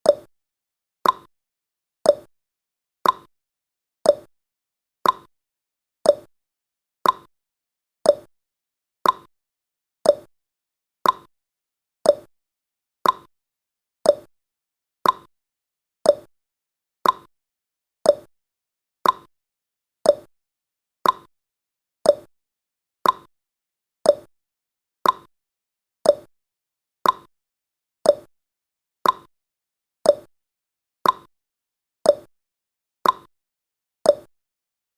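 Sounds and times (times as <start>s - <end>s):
timer ticking: 0.0s - 0.3s, 1.0s - 1.3s, 2.0s - 2.3s, 3.0s - 3.3s, 4.0s - 4.3s, 5.0s - 5.3s, 6.0s - 6.3s, 7.0s - 7.3s, 8.0s - 8.3s, 9.0s - 9.3s, 10.0s - 10.3s, 11.0s - 11.3s, 12.0s - 12.3s, 13.0s - 13.3s, 14.0s - 14.3s, 15.0s - 15.3s, 16.0s - 16.3s, 17.0s - 17.3s, 18.0s - 18.3s, 19.0s - 19.3s, 20.0s - 20.3s, 21.0s - 21.3s, 22.0s - 22.3s, 23.0s - 23.3s, 24.0s - 24.3s, 25.0s - 25.3s, 26.0s - 26.3s, 27.0s - 27.3s, 28.0s - 28.3s, 29.0s - 29.3s, 30.0s - 30.3s, 31.0s - 31.3s, 32.0s - 32.3s, 33.0s - 33.3s, 34.1s - 34.3s.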